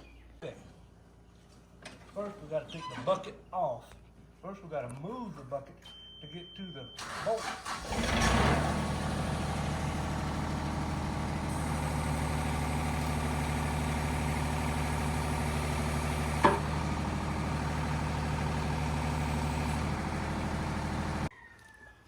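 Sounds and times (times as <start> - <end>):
diesel engine running: 7.0 - 21.3.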